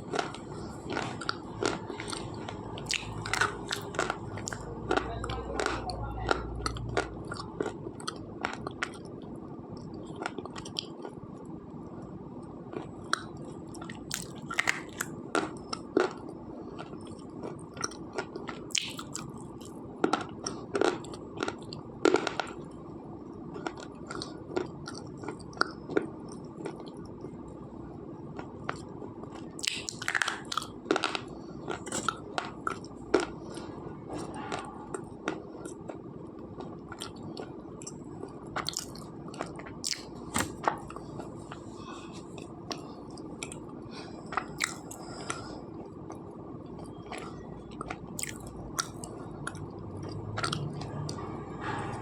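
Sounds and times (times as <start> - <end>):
pencil being chewed crunching: 0.0 - 9.2.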